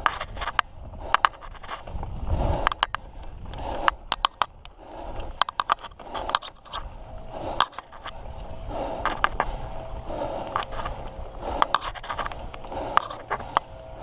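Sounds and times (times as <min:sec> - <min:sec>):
mountain bike rattling: 0:00.0 - 0:14.0
tyres scraping dirt: 0:00.0 - 0:14.0.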